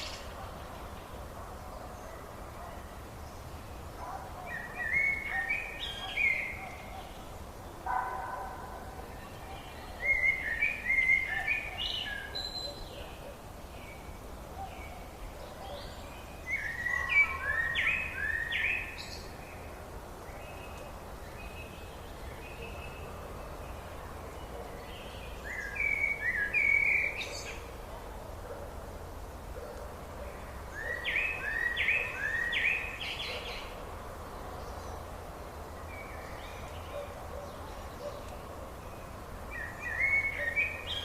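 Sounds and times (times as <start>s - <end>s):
steady background hiss: 0.0s - 41.0s
songbird whistled song: 4.4s - 7.2s, 9.2s - 19.7s, 24.4s - 27.7s, 30.3s - 33.8s, 35.9s - 41.0s.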